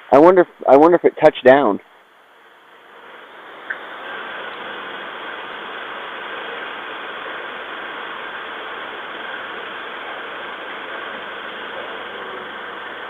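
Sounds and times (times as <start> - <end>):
vehicle engine idling: 9.5 - 13.0.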